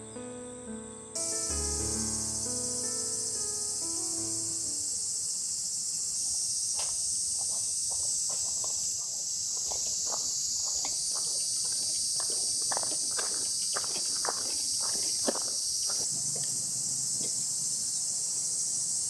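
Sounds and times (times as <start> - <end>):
music: 0.0 - 5.1
insects droning: 0.0 - 19.0
crunching footsteps: 6.2 - 17.5.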